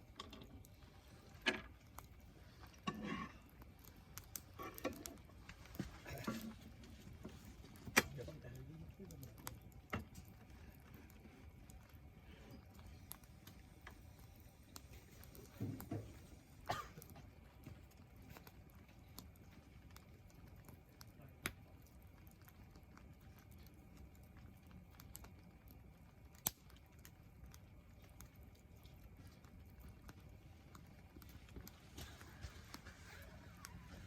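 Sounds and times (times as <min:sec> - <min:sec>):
fire pops: 0:00.0 - 0:08.5, 0:09.2 - 0:21.7, 0:24.9 - 0:28.0
campfire crackling: 0:00.0 - 0:34.0
low steady hiss: 0:00.0 - 0:34.0.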